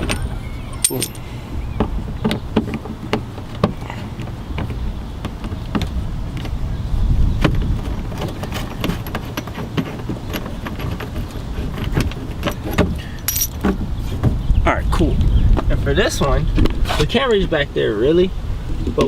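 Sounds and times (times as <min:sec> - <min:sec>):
metallic tool clicks and rattles: 0:00.0 - 0:01.2.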